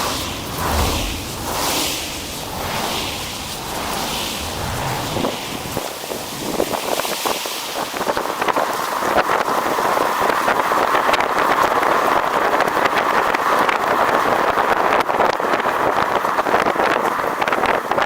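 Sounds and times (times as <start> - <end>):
tyres on slushy road: 0.0 - 18.0
wind rushing over microphone: 0.0 - 18.0.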